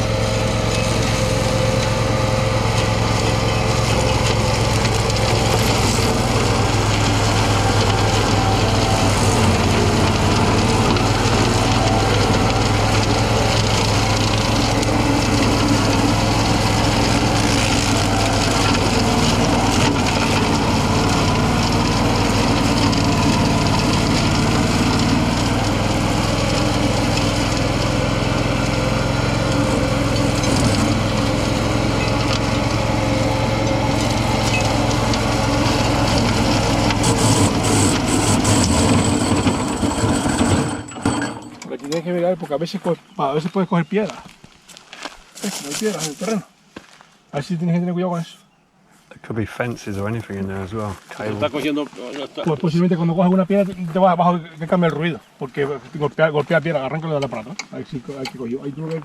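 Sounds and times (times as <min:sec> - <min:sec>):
flail mower whirring: 0:00.0 - 0:47.0
tractor engine running: 0:00.0 - 0:47.5.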